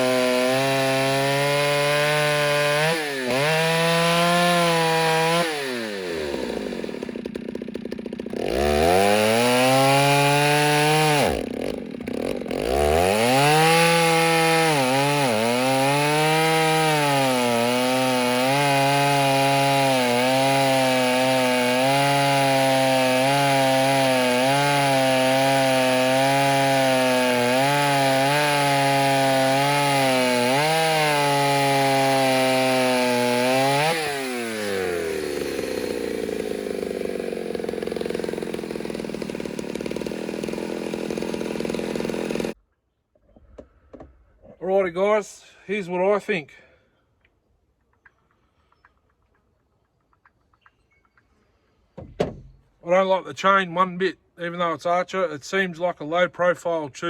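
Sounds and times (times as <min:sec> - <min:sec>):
chainsaw revving and cutting wood: 0:00.0 - 0:42.6.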